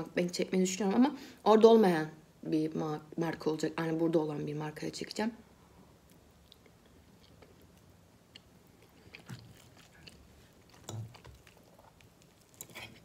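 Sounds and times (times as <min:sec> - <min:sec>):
faint chewing of spaghetti: 0:06.0 - 0:13.0.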